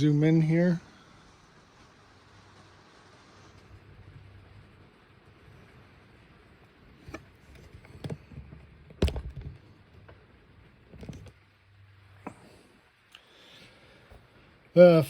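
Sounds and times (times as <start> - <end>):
low steady hum: 0.0 - 15.0
knocks and handling bumps: 8.0 - 9.6.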